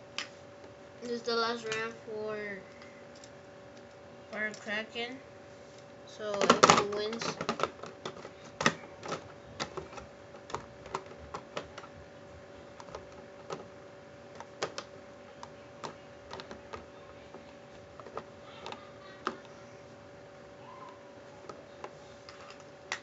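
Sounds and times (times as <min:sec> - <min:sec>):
faint steady hum: 0:00.0 - 0:23.0
small plastic parts clicking: 0:14.3 - 0:19.6.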